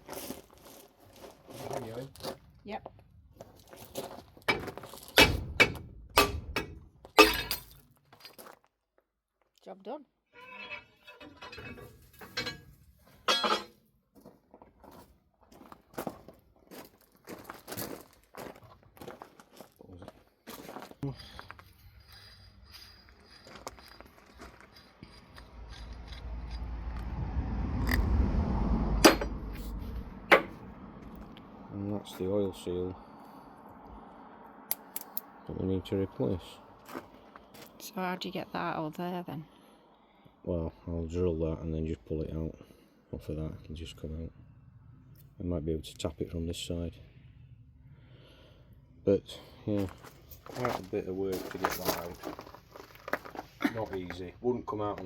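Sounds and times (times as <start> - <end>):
hammer striking metal: 4.5 - 7.8, 13.3 - 13.7, 29.0 - 30.7
metal parts scraping: 4.5 - 7.8, 10.4 - 13.8, 21.2 - 26.7, 29.0 - 30.6
sharp metallic knocks: 4.5 - 7.8, 13.3 - 13.7, 28.9 - 30.7.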